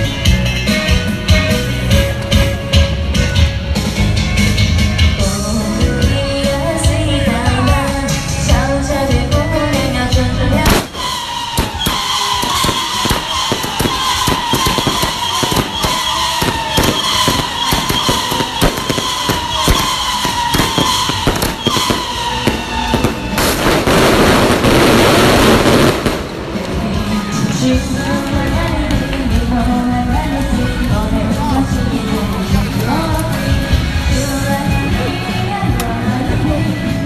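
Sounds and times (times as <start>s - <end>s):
firecracker crackling burst: 10.6s - 29.2s
fireworks banging: 10.6s - 29.4s
falling whistling tone: 10.7s - 23.9s.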